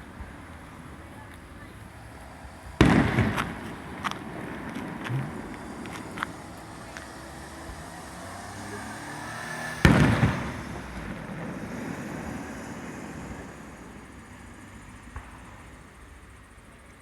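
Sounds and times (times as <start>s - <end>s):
low rumble: 0.0s - 8.5s
firework boom: 2.7s - 7.8s, 9.8s - 13.8s.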